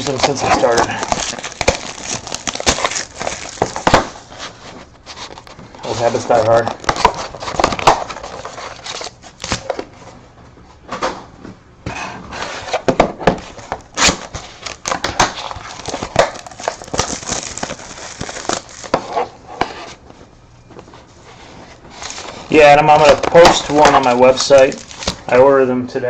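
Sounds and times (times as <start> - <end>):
scissors cutting plastic: 0.0 - 4.0
plastic wrapping crinkling and tearing: 0.0 - 9.8, 13.5 - 19.4, 21.9 - 25.5.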